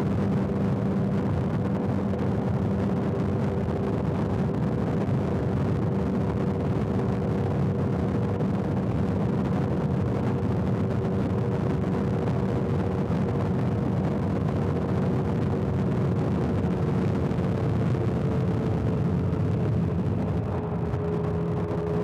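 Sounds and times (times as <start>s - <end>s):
road rumble: 0.0s - 22.0s
wind: 0.0s - 22.0s.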